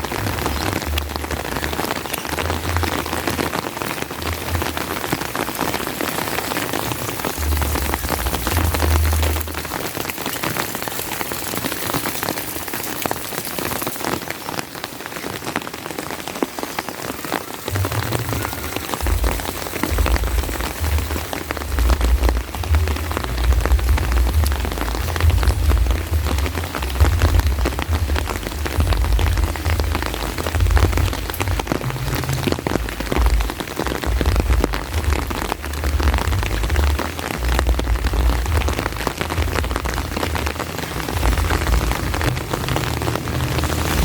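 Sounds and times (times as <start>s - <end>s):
steady rain falling: 0.0s - 44.0s
low rumble: 17.7s - 44.0s.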